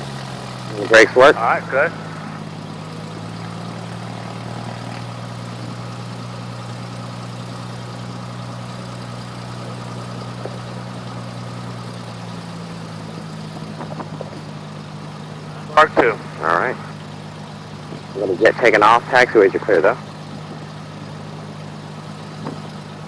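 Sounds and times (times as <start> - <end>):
aircraft engine droning: 0.0 - 12.0, 13.1 - 21.4.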